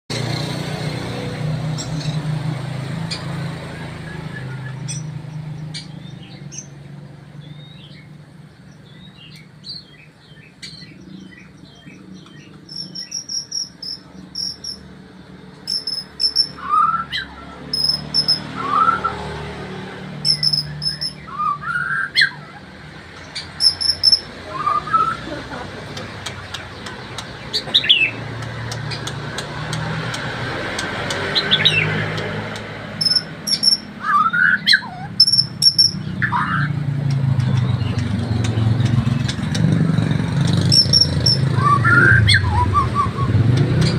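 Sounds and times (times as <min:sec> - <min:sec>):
bird singing chirps and whistles: 0:03.7 - 0:05.1, 0:08.9 - 0:14.8, 0:15.7 - 0:19.3, 0:20.2 - 0:22.5, 0:23.4 - 0:25.2, 0:33.0 - 0:36.8, 0:40.7 - 0:43.9.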